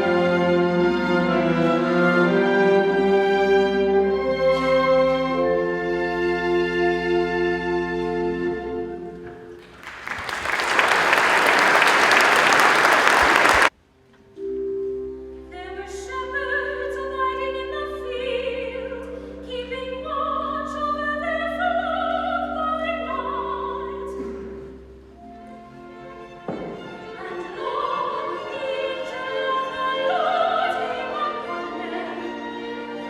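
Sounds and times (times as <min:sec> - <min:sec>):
classical instrumental piece: 0:00.0 - 0:13.7, 0:14.4 - 0:33.0
classical singing with chords: 0:00.0 - 0:13.7, 0:14.8 - 0:33.0
audience applauding: 0:09.6 - 0:13.7.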